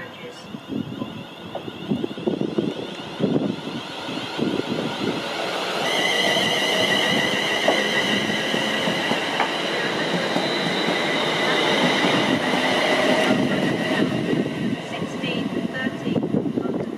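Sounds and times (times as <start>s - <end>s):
high-pitched brake squeal: 0.0s - 4.3s, 5.5s - 14.3s
train rumble: 0.0s - 16.9s
train wheels clattering on track: 4.3s - 15.8s.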